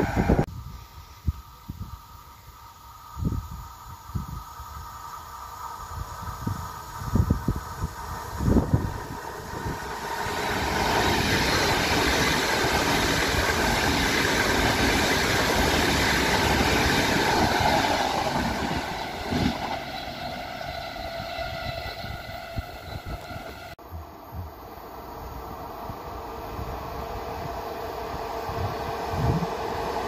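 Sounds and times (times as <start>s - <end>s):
train wheels rumbling: 5.6s - 24.7s.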